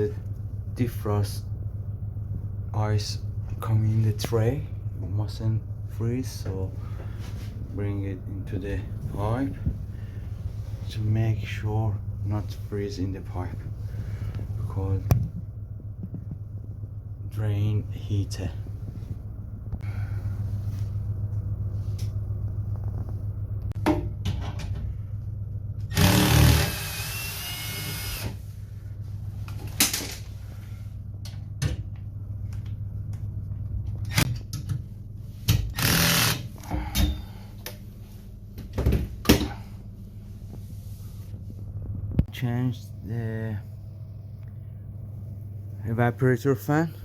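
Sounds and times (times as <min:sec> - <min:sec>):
steady low hum: 0:00.0 - 0:47.0
power drill running: 0:25.9 - 0:28.4, 0:35.7 - 0:36.6.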